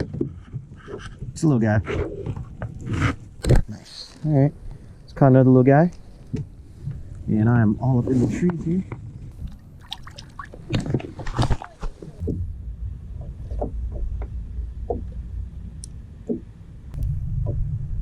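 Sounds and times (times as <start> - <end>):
steady low rumble: 12.1 - 18.0.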